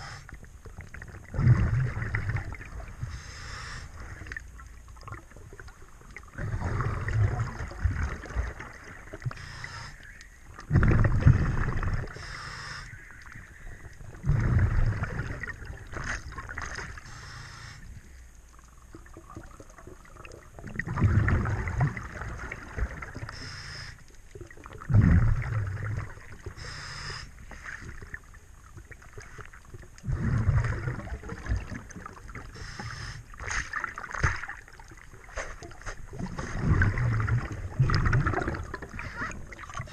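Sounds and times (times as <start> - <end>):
underwater water noise: 0.0 - 39.9
diver exhaling bubbles underwater: 1.0 - 3.1, 6.2 - 9.9, 10.6 - 12.3, 14.1 - 17.4, 19.1 - 23.4, 24.6 - 28.1, 30.0 - 33.2, 36.1 - 39.9.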